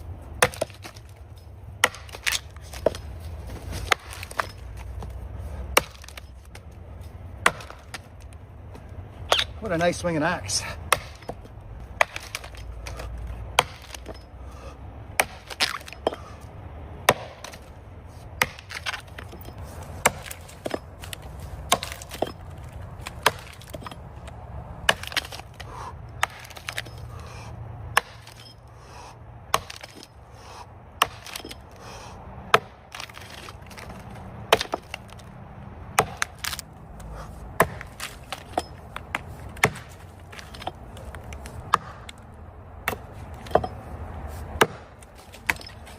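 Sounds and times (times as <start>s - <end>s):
axe chopping into tree trunk: 0.4s - 1.2s, 1.8s - 5.1s, 5.7s - 6.7s, 7.4s - 8.3s, 9.3s - 9.8s, 10.9s - 14.2s, 15.2s - 16.3s, 17.0s - 17.7s, 18.4s - 24.0s, 24.8s - 27.0s, 27.9s - 28.5s, 29.5s - 30.2s, 31.0s - 31.7s, 32.5s - 35.3s, 36.0s - 36.6s, 37.6s - 42.2s, 42.8s - 43.8s, 44.5s - 45.9s.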